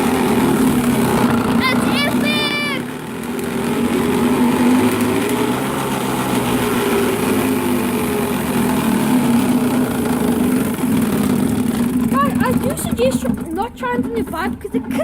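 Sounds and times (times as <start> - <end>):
plastic bottle rattling on bicycle wheel: 3.1 - 15.0.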